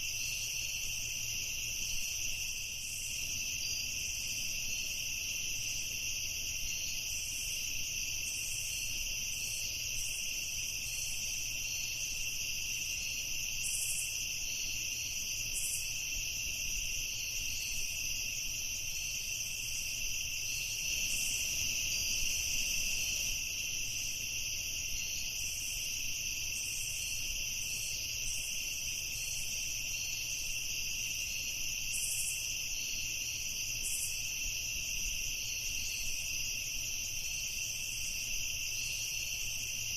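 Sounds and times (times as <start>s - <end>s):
crickets trilling: 0.0s - 39.9s
insect chirps: 0.0s - 39.9s.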